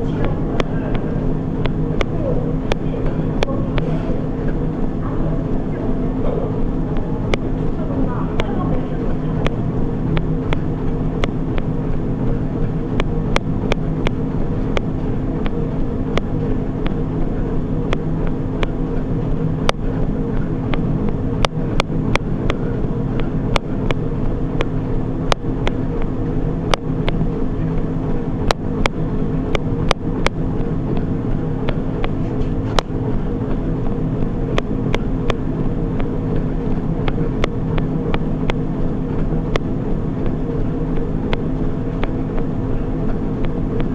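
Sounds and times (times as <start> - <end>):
treadmill motor and belt hum: 0.0 - 43.9
sharp clicks: 23.2 - 43.9.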